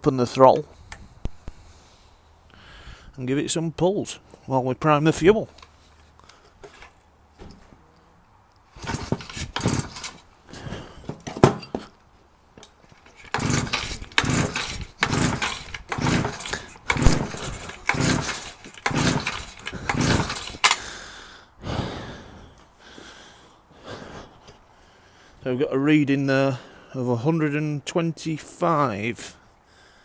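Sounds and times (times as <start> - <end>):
engine turned over by recoil starter: 8.8 - 10.2, 12.9 - 20.9.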